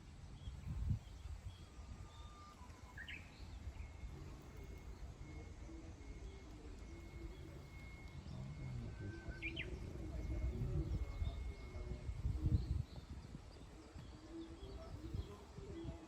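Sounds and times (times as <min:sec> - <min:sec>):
low outdoor rumble: 0:00.0 - 0:16.0
wild birds calling: 0:06.0 - 0:11.7.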